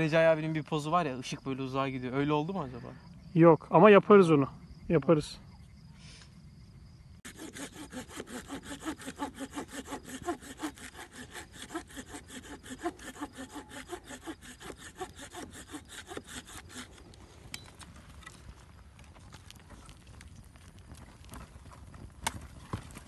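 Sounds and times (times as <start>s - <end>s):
hand saw cutting wood: 7.2s - 17.2s.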